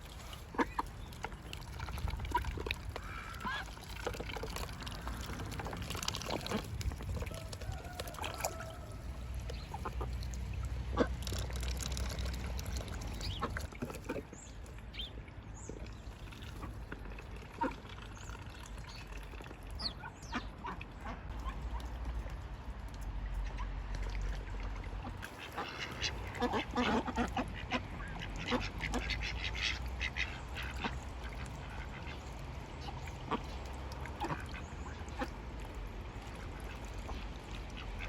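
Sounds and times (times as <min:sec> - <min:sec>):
ducks dabbling with clicks: 0:00.0 - 0:38.0
water splashing: 0:00.0 - 0:38.0
ducks quacking: 0:00.2 - 0:01.5, 0:02.1 - 0:03.9, 0:06.2 - 0:11.5, 0:19.8 - 0:22.0, 0:25.0 - 0:35.4.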